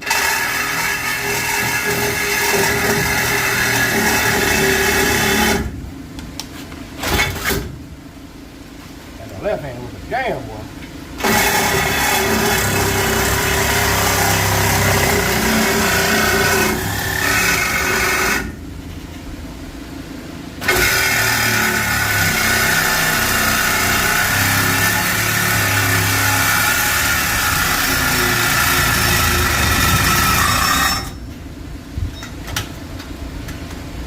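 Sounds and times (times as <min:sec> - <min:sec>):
motor running with a whine: 0:20.6 - 0:31.2.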